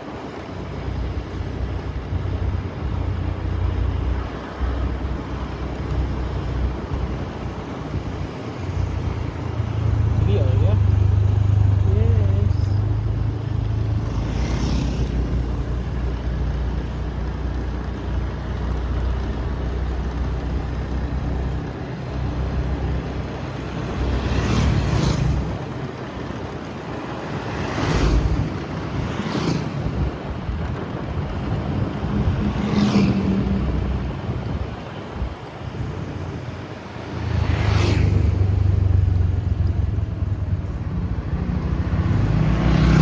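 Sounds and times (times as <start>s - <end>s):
wind on microphone: 23.9s - 43.0s.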